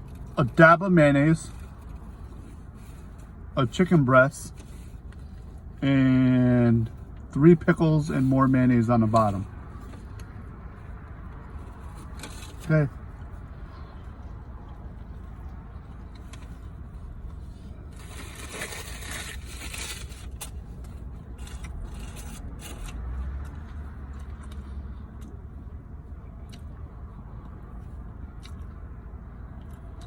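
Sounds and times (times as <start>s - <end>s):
sandwich crunching and rustling: 1.3s - 5.8s, 8.4s - 25.4s.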